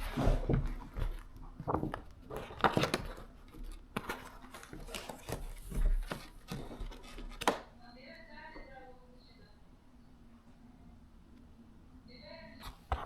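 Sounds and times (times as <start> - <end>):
irregular knocks and clatter: 0.0 - 7.6.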